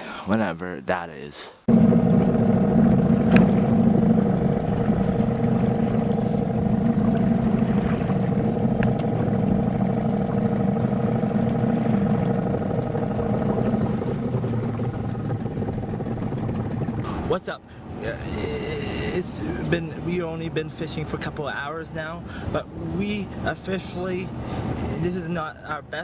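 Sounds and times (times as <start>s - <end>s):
motor engine droning: 1.7s - 17.1s.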